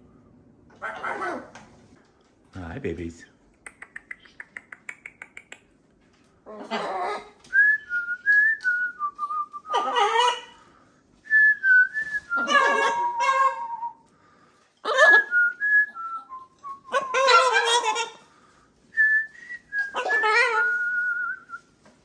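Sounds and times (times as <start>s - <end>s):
harsh parrot calls: 6.4s - 7.4s, 9.6s - 10.6s, 12.3s - 13.9s, 14.8s - 15.3s, 16.8s - 18.3s, 19.8s - 20.9s.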